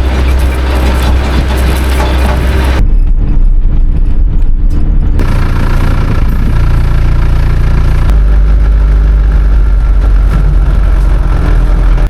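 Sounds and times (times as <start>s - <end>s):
vehicle engine humming: 0.0s - 12.0s
loud rushing noise: 5.1s - 12.0s.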